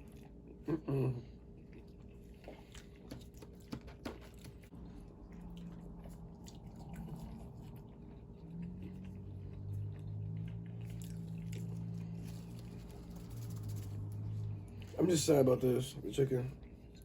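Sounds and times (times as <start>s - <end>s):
low steady hum: 0.0s - 17.0s
wet chewing and mouth clicks: 1.4s - 15.0s.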